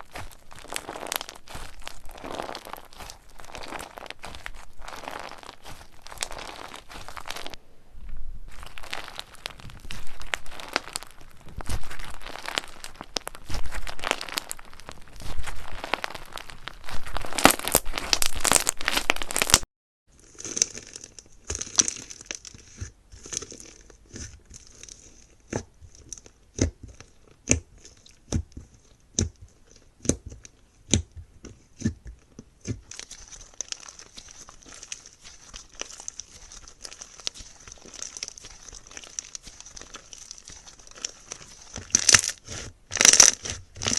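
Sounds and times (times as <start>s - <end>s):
slime squeezed by hand crackling: 0.0s - 7.6s, 8.4s - 19.6s, 32.6s - 43.9s.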